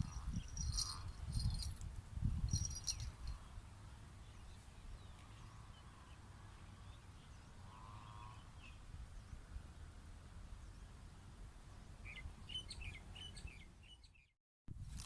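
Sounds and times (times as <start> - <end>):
bird warbling trill: 0.0 - 1.7.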